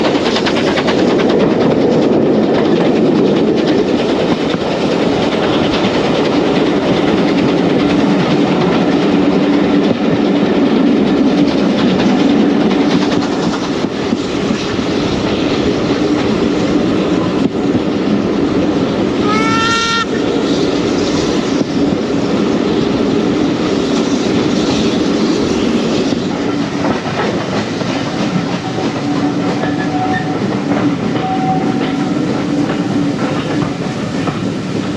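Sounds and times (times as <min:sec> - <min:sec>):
train rumble and wheel clatter: 0:00.0 - 0:34.9
locomotive whistle: 0:19.2 - 0:20.3.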